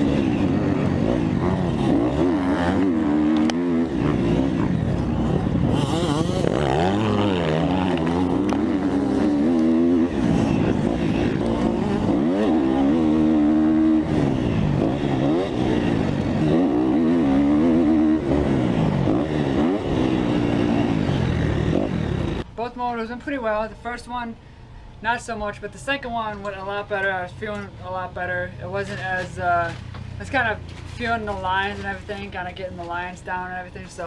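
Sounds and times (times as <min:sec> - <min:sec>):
motocross bike engine revving: 0:00.0 - 0:22.6.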